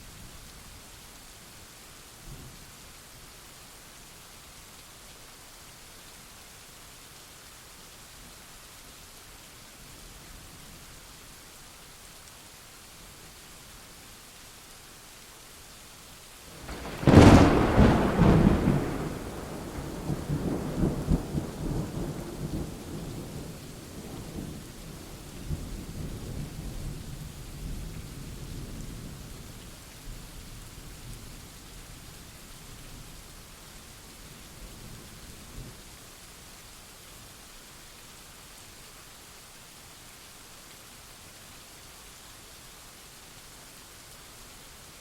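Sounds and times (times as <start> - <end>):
steady rain: 0.0 - 45.0
thunderclap rolling into rumble: 16.6 - 23.5.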